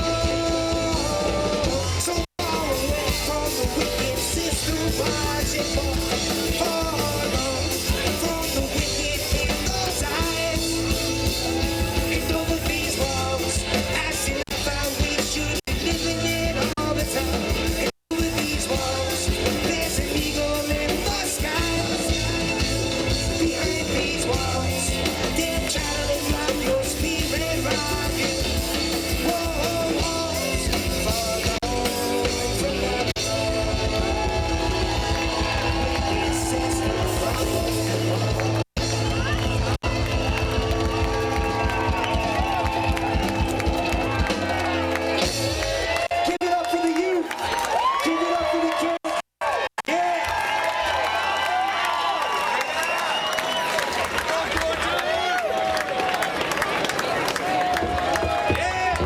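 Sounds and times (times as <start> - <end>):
reggae band playing: 0.0 - 46.3.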